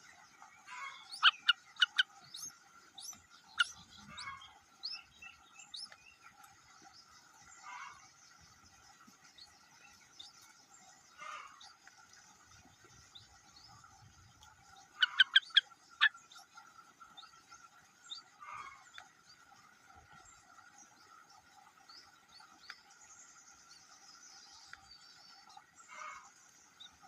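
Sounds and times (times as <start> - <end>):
bird chirping: 0.0 - 19.4.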